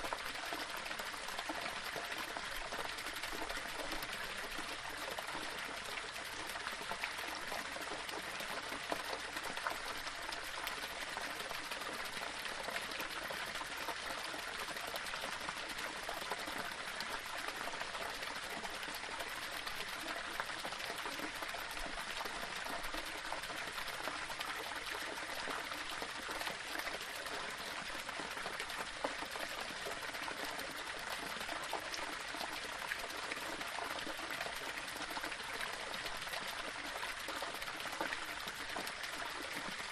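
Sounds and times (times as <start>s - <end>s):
waterfall splashing over stones: 0.0s - 39.9s.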